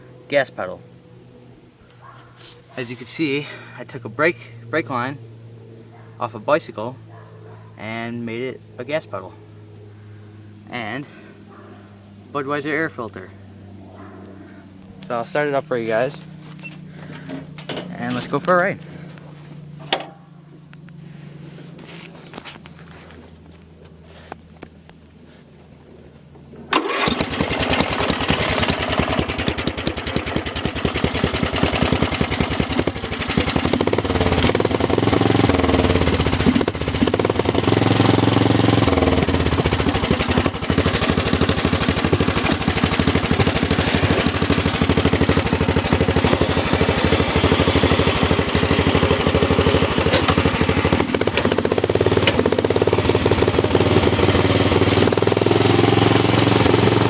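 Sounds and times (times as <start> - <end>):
lawn tractor engine popping: 14.2 - 21.0, 21.7 - 57.0.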